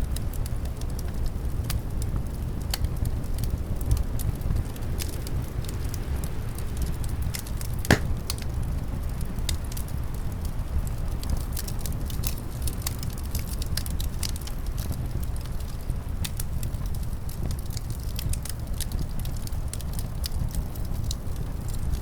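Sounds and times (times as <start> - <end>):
wood fire crackling and popping: 0.1 - 22.0
loud sharp pop: 7.9 - 8.5.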